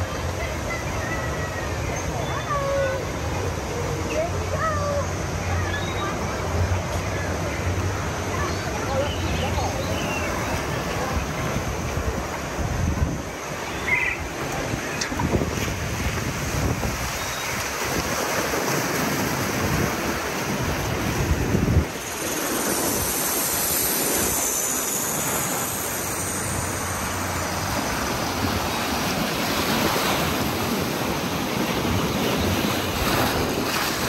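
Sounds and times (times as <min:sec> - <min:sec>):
rushing river rapids: 0:09.7 - 0:34.0
wind buffeting microphone: 0:14.2 - 0:23.3.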